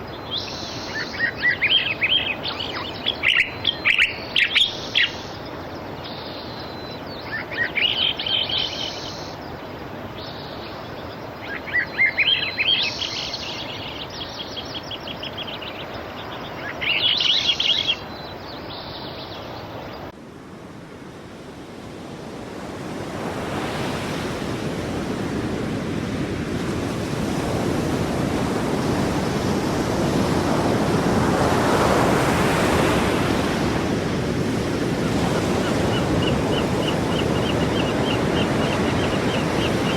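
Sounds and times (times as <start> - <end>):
birds chirping: 0.0 - 20.1, 31.6 - 39.9
sea surf washing: 20.2 - 39.9.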